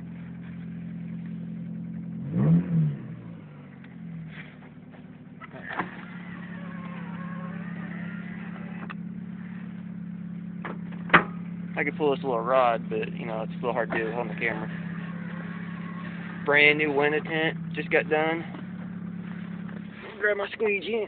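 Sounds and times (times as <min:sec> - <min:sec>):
engine revving: 0:00.0 - 0:20.6
car engine idling: 0:00.0 - 0:21.0.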